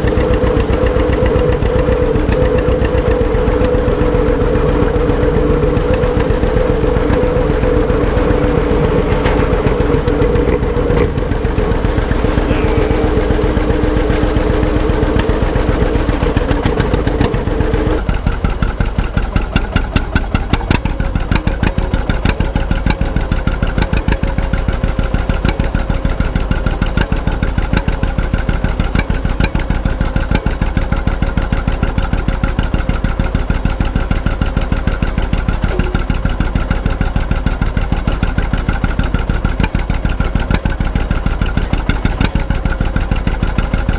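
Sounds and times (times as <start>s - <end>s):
steady droning tone: 0.0s - 19.9s, 35.5s - 37.7s
tractor engine running: 0.0s - 43.9s.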